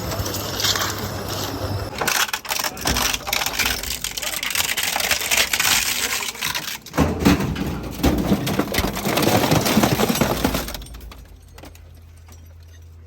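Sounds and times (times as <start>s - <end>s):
machine humming: 0.0s - 2.1s
metal and plastic crunching: 0.0s - 13.0s.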